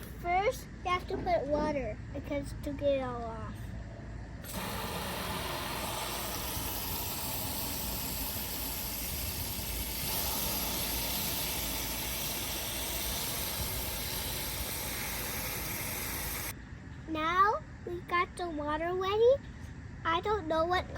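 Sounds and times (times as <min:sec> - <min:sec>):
water running from a tap: 0:04.5 - 0:16.5.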